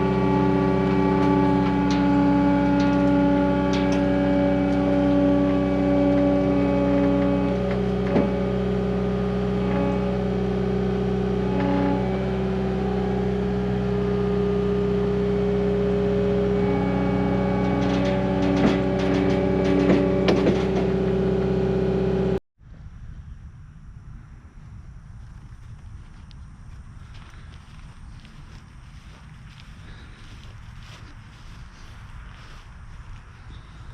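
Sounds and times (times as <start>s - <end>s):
sharp metallic clanks: 0.0s - 21.6s
engine running steadily: 0.0s - 33.9s.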